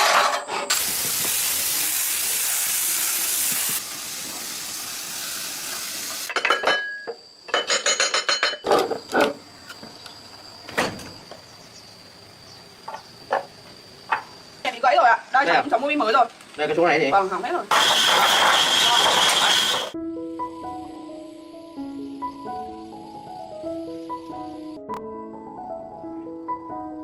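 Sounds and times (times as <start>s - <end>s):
loud steady hiss: 0.5s - 6.6s, 9.4s - 20.0s
metallic clinks and knocks: 6.3s - 8.9s.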